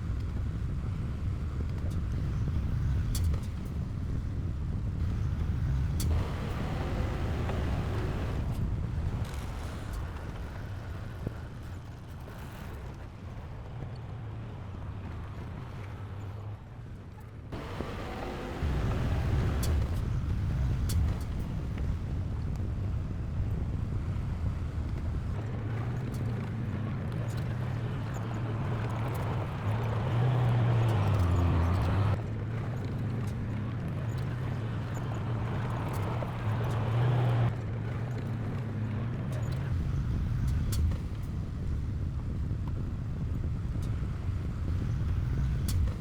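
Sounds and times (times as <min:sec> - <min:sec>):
heavy diesel engine running: 0:05.0 - 0:09.2, 0:17.6 - 0:26.5.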